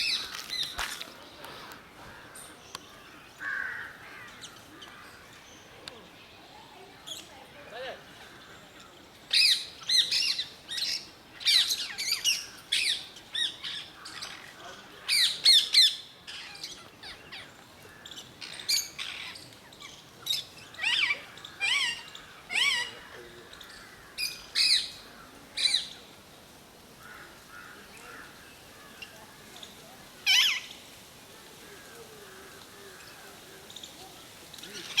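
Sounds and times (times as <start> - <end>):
lovebirds squawking: 0.0 - 5.2.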